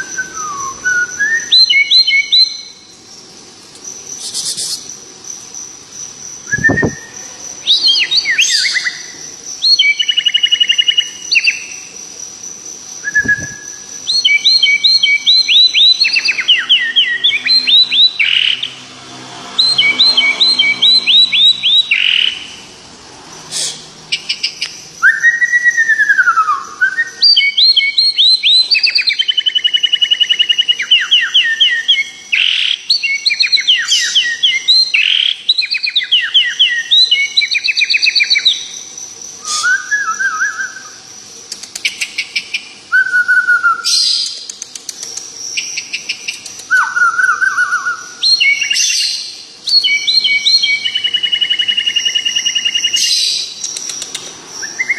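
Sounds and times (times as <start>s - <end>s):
songbird singing: 0.0s - 54.9s.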